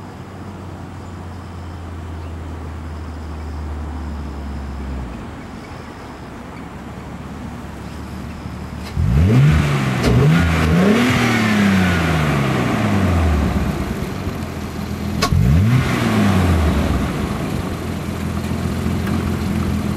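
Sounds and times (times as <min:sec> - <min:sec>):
car engine accelerating hard: 0:08.8 - 0:19.9.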